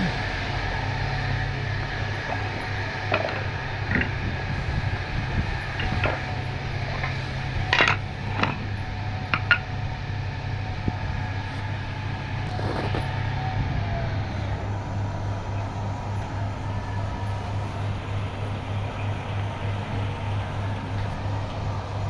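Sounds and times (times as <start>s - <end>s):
woodworking machine motor humming: 0.0s - 22.0s
wood knocks and clicks: 3.1s - 4.2s.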